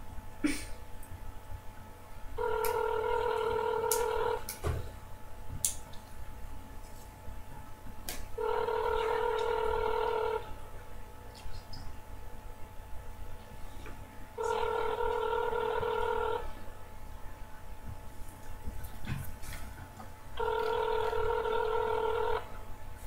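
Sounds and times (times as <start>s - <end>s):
telephone ringback tone: 2.4s - 4.5s, 8.4s - 10.4s, 14.4s - 16.5s, 20.4s - 22.5s.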